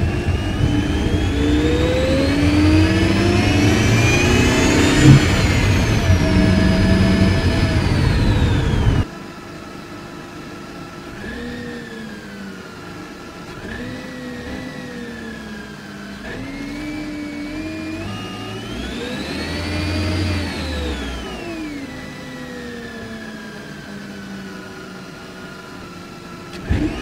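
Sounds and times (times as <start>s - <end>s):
car engine revving: 0.0s - 9.1s, 13.5s - 23.2s
supercharger whine: 0.0s - 27.0s.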